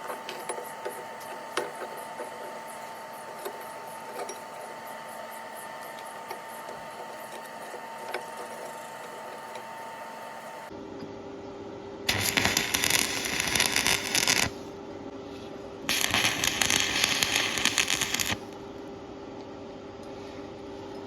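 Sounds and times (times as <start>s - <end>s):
steady hum: 0.0s - 20.8s
welding arc crackling: 12.1s - 14.6s, 15.9s - 18.5s.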